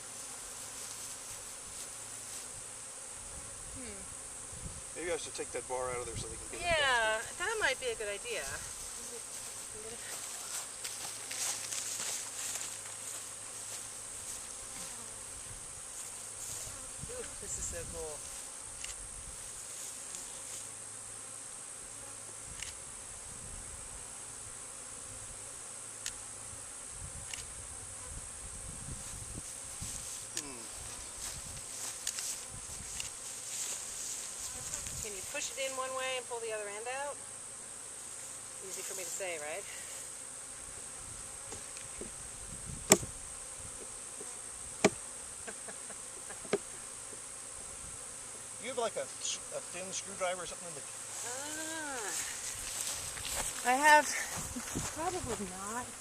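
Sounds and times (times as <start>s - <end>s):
bee swarm buzzing: 0.0s - 56.0s
sharp knocks: 42.9s - 43.1s.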